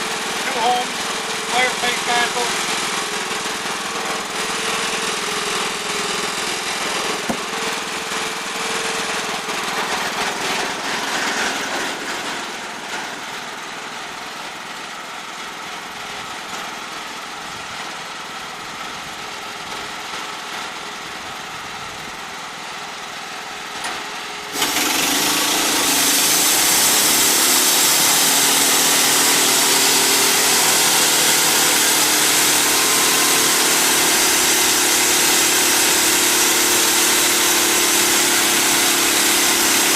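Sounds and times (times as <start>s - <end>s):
band sawmill running: 0.0s - 39.9s
band blade sawing through log: 24.6s - 39.9s.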